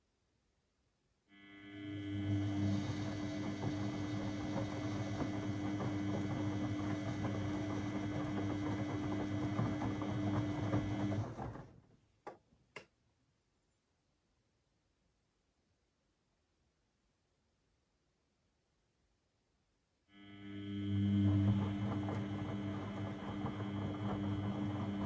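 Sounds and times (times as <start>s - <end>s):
washing machine running: 1.8s - 11.8s, 20.4s - 25.0s.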